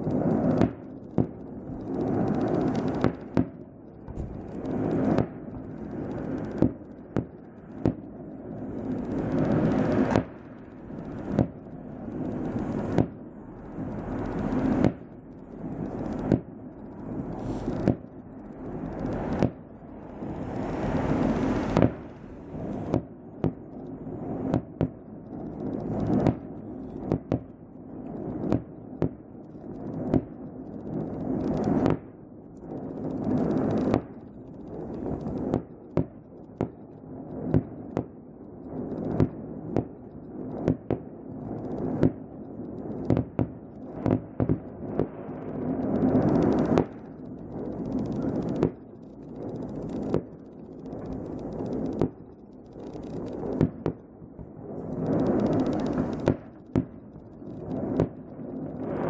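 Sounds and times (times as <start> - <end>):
fireworks bursting with sharp bangs: 0.0 - 59.0
low rumble: 4.0 - 24.2.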